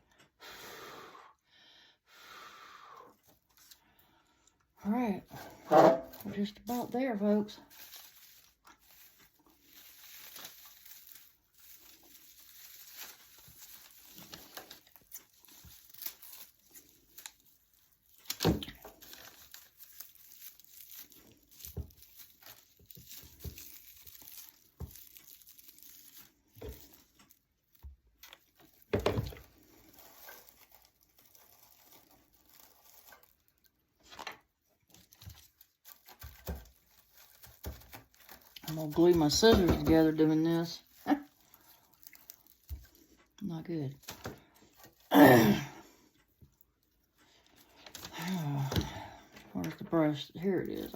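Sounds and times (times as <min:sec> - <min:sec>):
dry filler rustling: 0:05.1 - 0:45.1.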